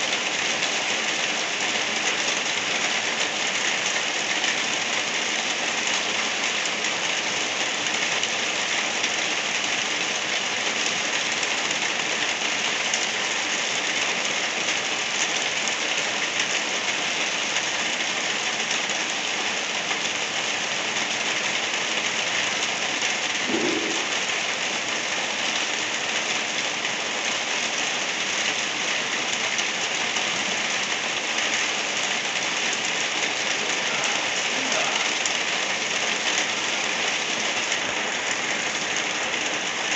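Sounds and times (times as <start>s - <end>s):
light rain falling: 0.0s - 39.9s.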